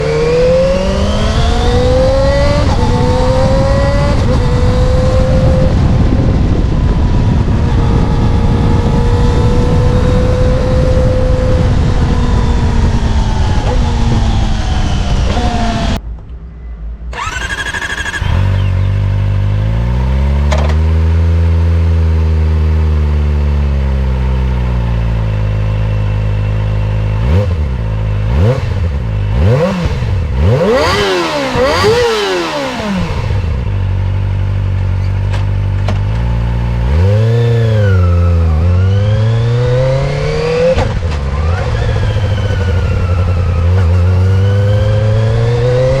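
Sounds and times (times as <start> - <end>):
motorcycle engine idling and revving: 0.0 - 46.0
starter motor whine: 17.1 - 18.7.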